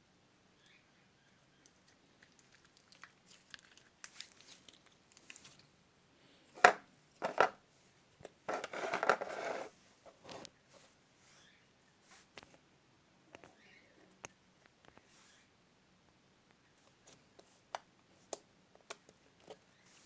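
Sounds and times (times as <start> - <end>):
crackly slime squish: 2.2 - 5.7.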